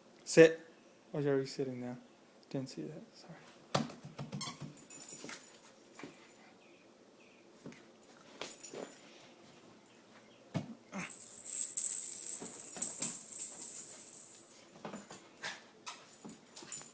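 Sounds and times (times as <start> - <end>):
high-pitched rattling rustle: 11.0 - 14.7.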